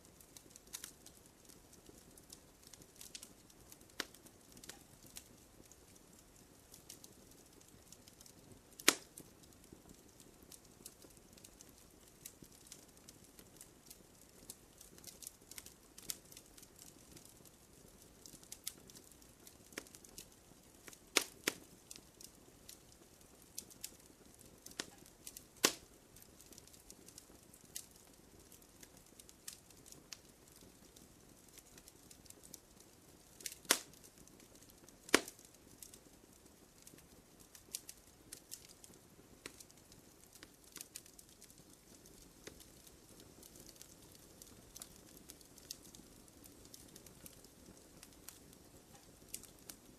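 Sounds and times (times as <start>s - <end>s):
campfire crackling: 0.0s - 49.9s.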